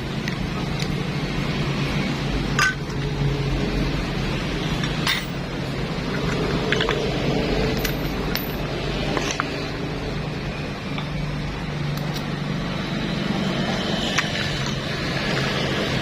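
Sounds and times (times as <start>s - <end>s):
metal engine parts clinking: 2.5s - 3.1s, 4.7s - 9.8s, 10.8s - 12.4s.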